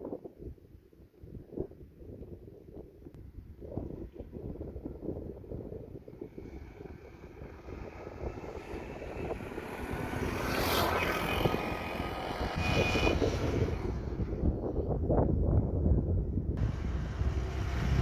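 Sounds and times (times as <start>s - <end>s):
wind rumble on microphone: 0.0s - 18.0s
engine running: 6.4s - 14.4s, 16.6s - 18.0s.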